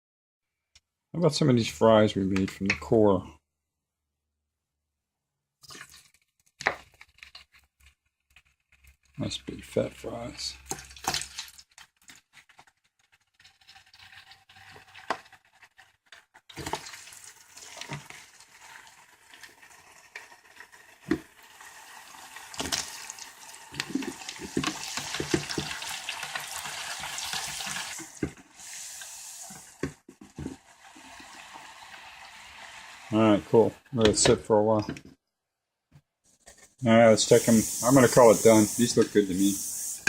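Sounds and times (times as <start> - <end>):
fries sizzling in hot oil: 9.8 - 34.0, 37.2 - 40.0.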